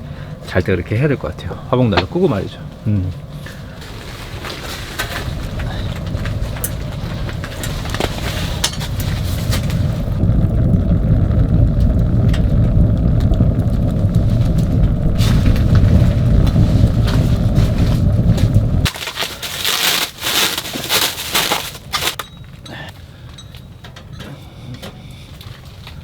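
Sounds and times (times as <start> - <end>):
fire crackles and pops: 0.0 - 24.0
wood fire rumbling in stove: 0.0 - 26.0.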